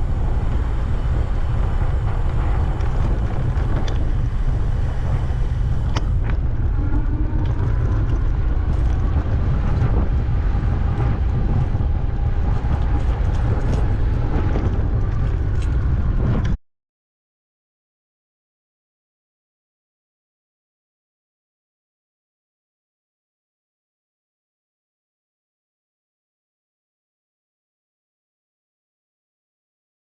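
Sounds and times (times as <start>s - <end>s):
wind buffeting microphone: 0.0s - 16.6s.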